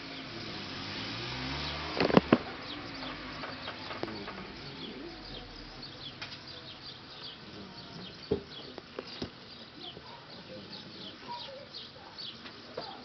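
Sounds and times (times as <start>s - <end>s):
birds chirping: 0.0s - 13.0s
sharp knocks: 2.0s - 5.2s.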